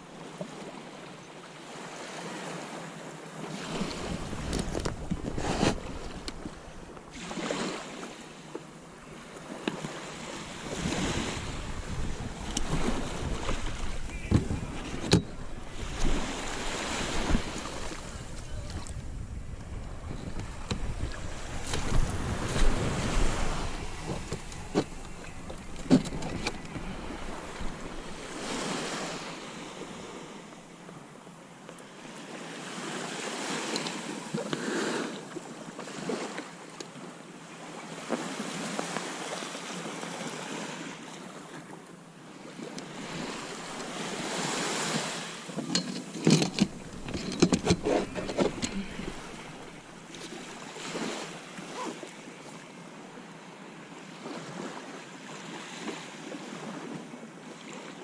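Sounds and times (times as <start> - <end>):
small waves lapping: 0.0 - 58.0
wind on microphone: 3.7 - 7.3, 10.4 - 30.2
knocks against kayak hull: 13.5 - 15.3.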